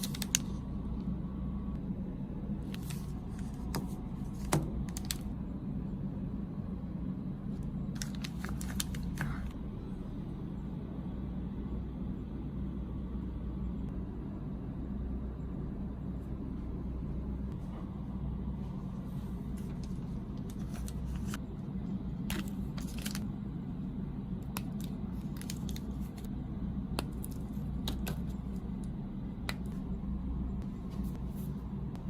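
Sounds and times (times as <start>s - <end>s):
steady low hum: 0.0s - 32.0s
snack packaging crinkling: 8.0s - 9.6s, 22.3s - 23.3s, 24.5s - 26.3s.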